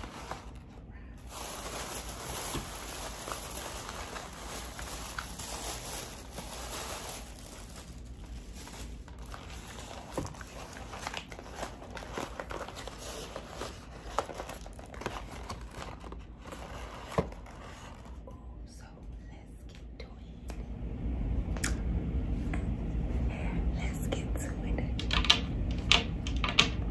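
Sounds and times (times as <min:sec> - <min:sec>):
paper wrapper crinkling: 0:00.0 - 0:18.2.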